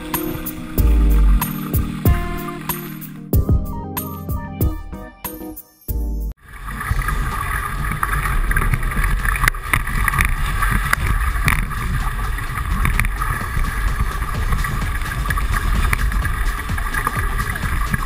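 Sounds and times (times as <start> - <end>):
rushing water: 6.4 - 18.0.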